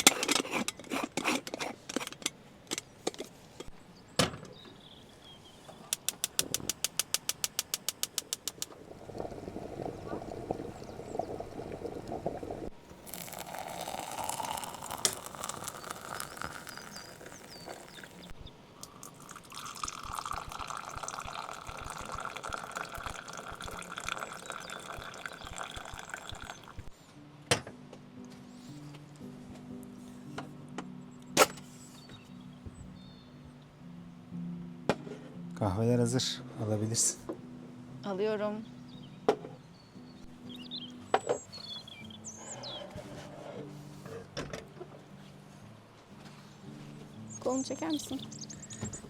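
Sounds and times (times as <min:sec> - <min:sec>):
liquid pouring into vessel: 0:08.6 - 0:26.9.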